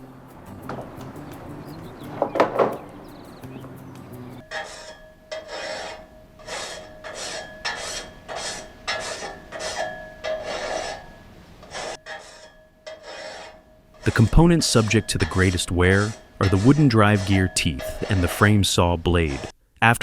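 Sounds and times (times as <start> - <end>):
faint music: 0.0 - 4.5
file rasping on saw blade: 4.4 - 19.5.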